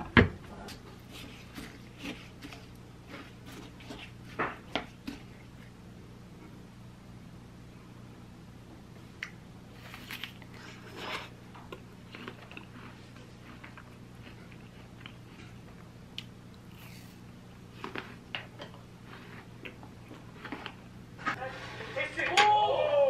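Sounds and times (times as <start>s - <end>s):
low steady hum: 0.0s - 23.0s
apple crunching: 0.8s - 5.7s, 9.2s - 21.4s.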